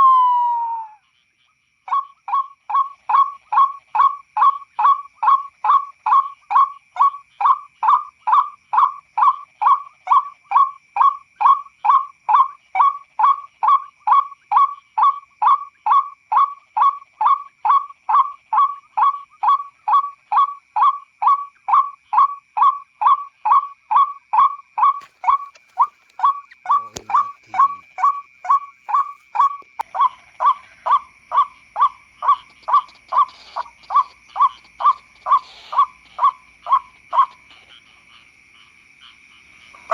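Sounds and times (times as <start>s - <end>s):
repeated bird call: 1.9s - 39.9s
steady high-pitched tone: 29.1s - 37.7s.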